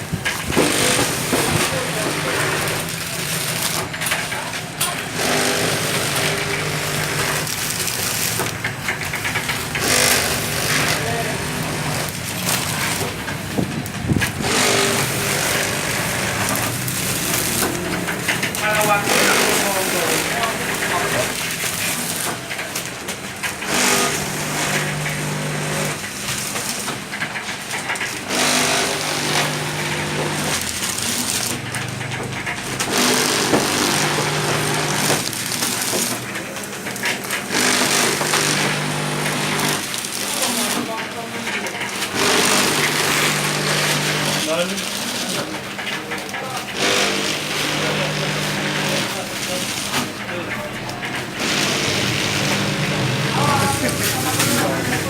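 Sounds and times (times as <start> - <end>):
packing machine motor hum: 0.0 - 55.0
motor hum: 5.1 - 20.9.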